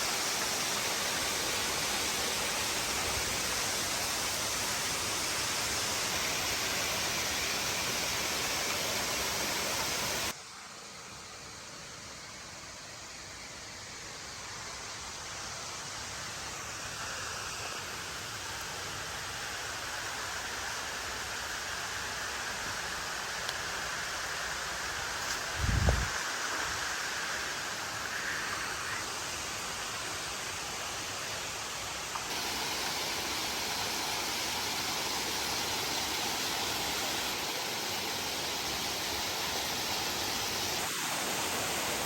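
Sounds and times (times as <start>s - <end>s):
rushing mountain water: 0.0s - 10.4s, 17.9s - 42.0s.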